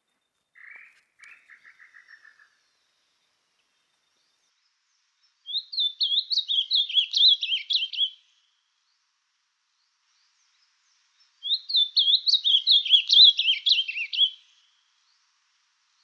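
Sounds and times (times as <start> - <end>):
songbird whistling: 5.5 - 8.2, 11.4 - 14.5.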